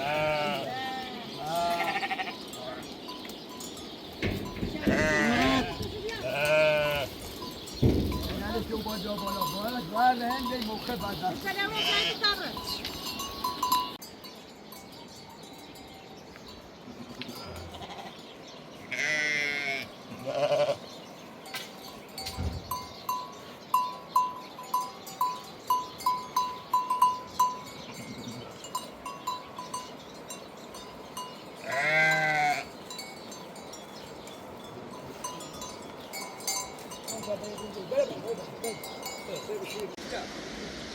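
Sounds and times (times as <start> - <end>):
livestock bleating: 0.0 - 2.8, 4.4 - 8.2, 11.5 - 12.5, 16.9 - 18.2, 18.8 - 21.0, 31.6 - 32.8
neck bell clinking: 2.5 - 6.6, 7.2 - 16.5, 21.5 - 31.5, 32.9 - 40.0.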